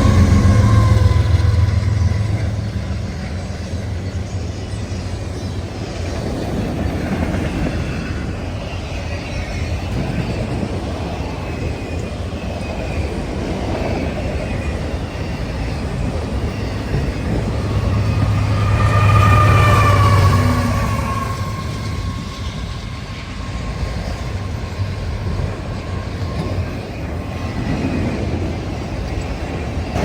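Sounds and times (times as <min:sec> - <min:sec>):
train wheels rumbling on rail: 0:00.0 - 0:30.0
wheel squeal: 0:13.8 - 0:28.0
high squealing tone: 0:15.8 - 0:25.1.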